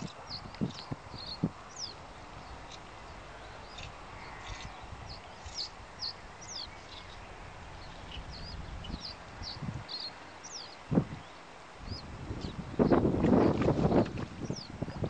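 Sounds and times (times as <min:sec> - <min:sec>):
small birds chirping: 0:00.0 - 0:15.0
low rumble: 0:02.1 - 0:09.8.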